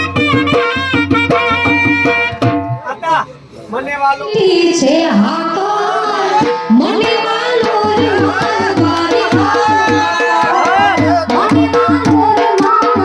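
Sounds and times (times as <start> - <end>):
drum beat: 0.0 - 3.2, 6.4 - 13.0.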